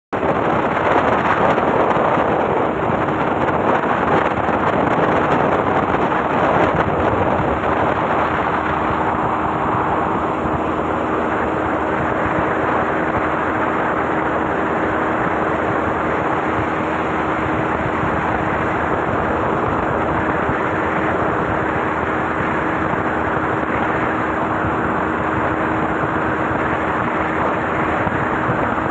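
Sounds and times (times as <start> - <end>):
rushing water and wind: 0.2 - 28.9
speedboat engine humming: 0.2 - 28.9.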